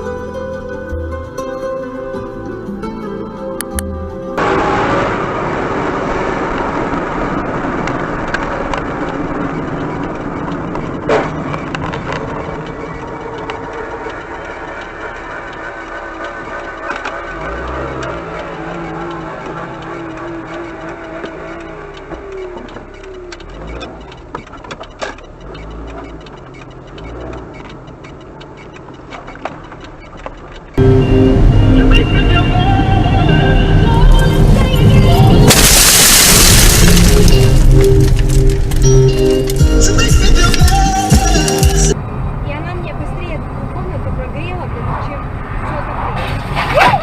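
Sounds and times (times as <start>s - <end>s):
car road and engine noise: 0.0s - 47.0s
faint clicks: 7.8s - 30.8s.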